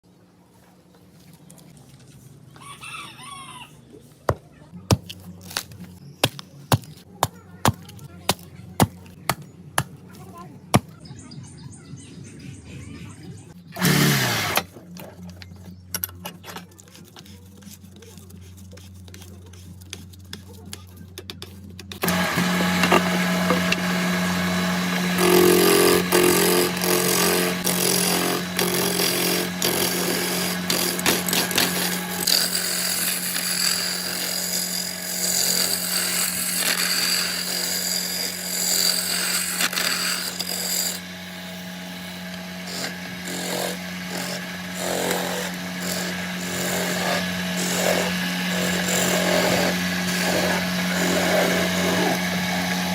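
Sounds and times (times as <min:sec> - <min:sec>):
power tool motor humming: 0:13.7 - 0:14.8, 0:22.0 - 0:52.9.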